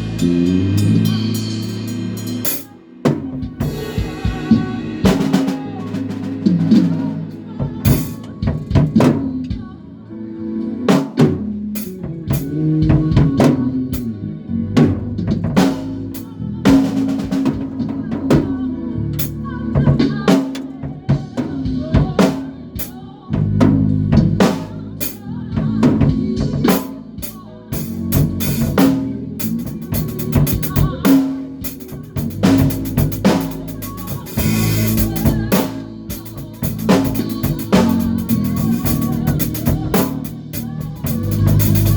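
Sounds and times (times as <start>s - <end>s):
bass guitar notes: 0.0s - 2.5s, 23.3s - 26.7s, 27.7s - 31.3s, 31.9s - 41.9s
drum kit beat: 0.0s - 9.8s, 10.9s - 14.2s, 14.8s - 41.9s.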